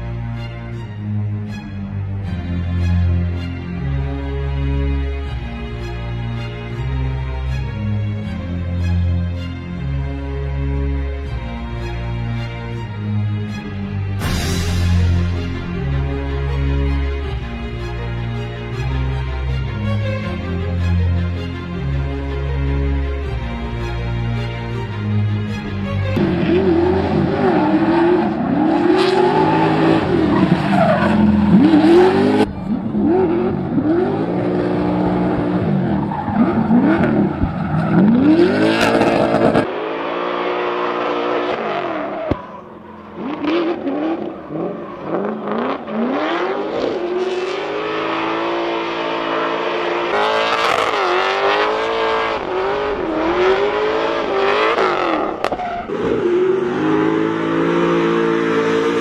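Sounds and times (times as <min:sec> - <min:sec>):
car engine revving: 0:24.5 - 0:59.0.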